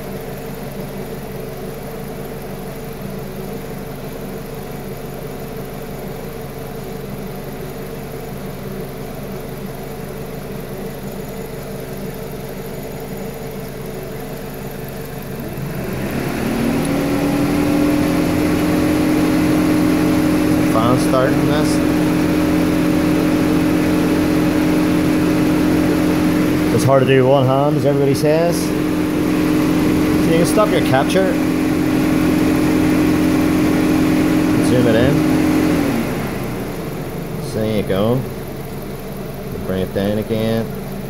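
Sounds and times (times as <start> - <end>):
car engine idling: 0.0 - 41.0
rising whir: 15.3 - 38.8.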